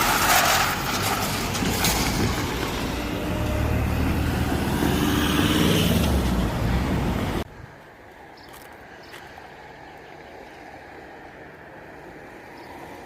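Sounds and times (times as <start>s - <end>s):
electric train rumbling: 0.0s - 7.5s.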